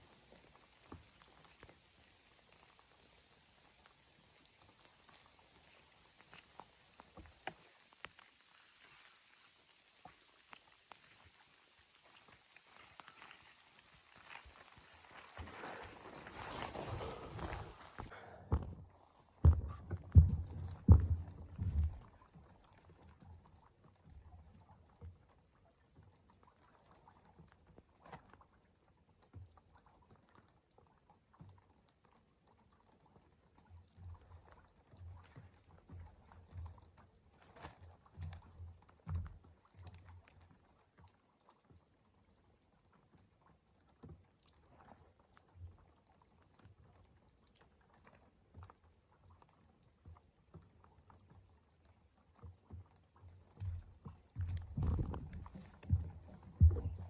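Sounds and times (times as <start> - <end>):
soft low thumps: 16.8 - 22.2, 53.6 - 57.0
faint soft knocks and clicks: 48.5 - 57.0.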